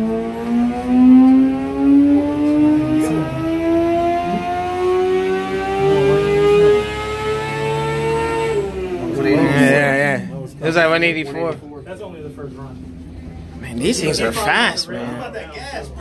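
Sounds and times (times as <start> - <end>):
motorcycle engine at full throttle: 0.0 - 9.8.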